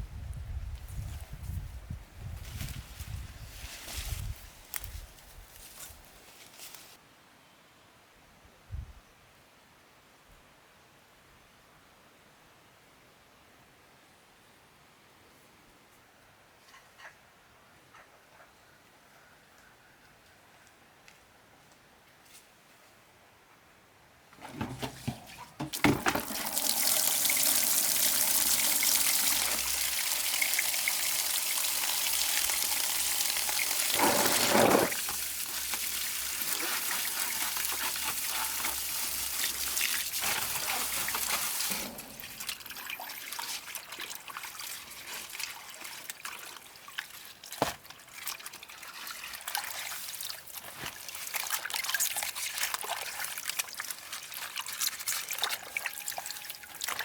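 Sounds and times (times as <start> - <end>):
water pouring and trickling: 25.0 - 57.0.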